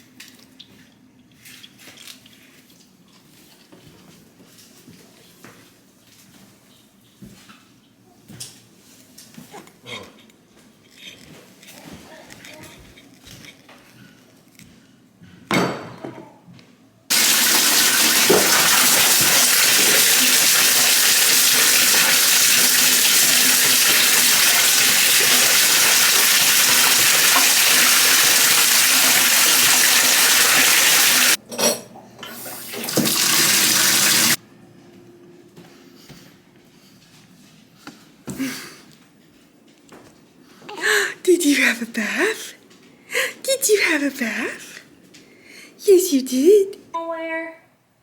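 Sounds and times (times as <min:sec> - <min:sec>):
water running from a tap: 0:17.1 - 0:31.4, 0:32.3 - 0:34.4.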